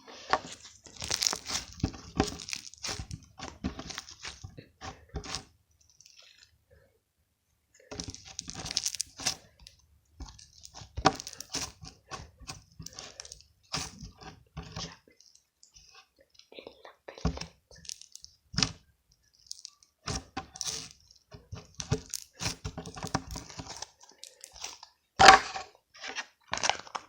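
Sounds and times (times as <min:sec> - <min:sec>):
slime squished with fingers: 0:00.4 - 0:04.5, 0:08.0 - 0:14.0.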